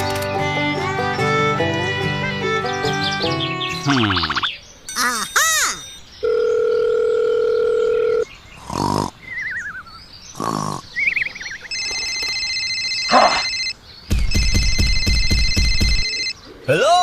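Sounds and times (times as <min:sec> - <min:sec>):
multi-tone electronic ringing: 0:05.2 - 0:08.3, 0:11.7 - 0:16.4
grunting cries: 0:13.1 - 0:13.5
pulsing beat: 0:14.1 - 0:16.2
electronic beep: 0:14.3 - 0:16.3.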